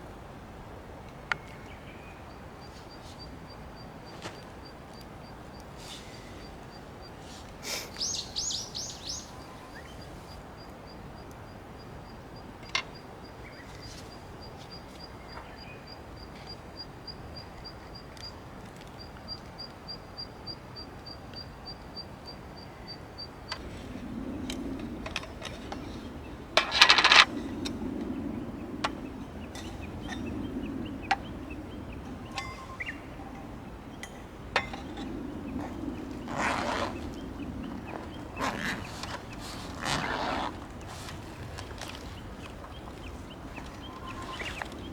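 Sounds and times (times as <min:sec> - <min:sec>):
birds chirping: 0:01.0 - 0:18.3, 0:21.4 - 0:44.9
loud short rustling: 0:37.9 - 0:44.9.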